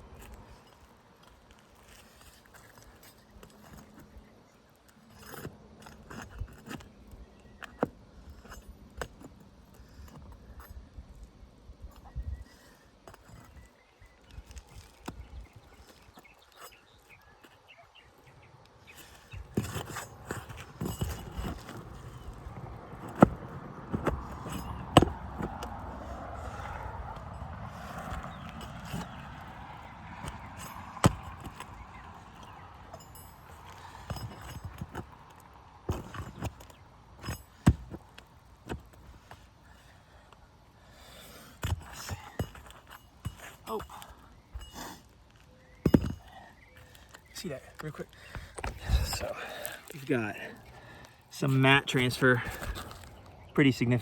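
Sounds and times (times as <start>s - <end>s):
faint metallic jingle: 26.0s - 36.5s.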